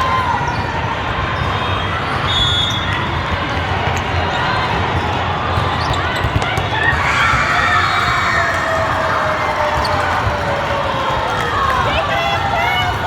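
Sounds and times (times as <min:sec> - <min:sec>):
crowd chatter: 0:00.0 - 0:13.0
balls bouncing and being struck: 0:03.0 - 0:07.5.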